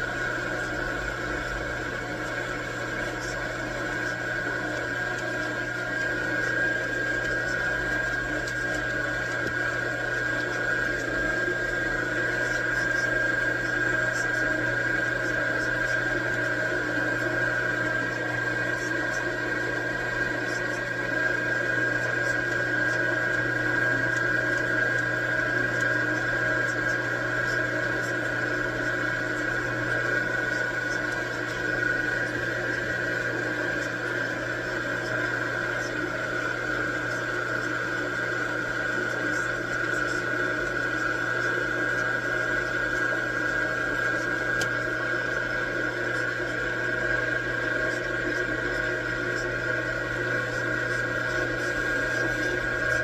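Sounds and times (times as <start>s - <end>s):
metal lathe whining: 0.0s - 53.0s.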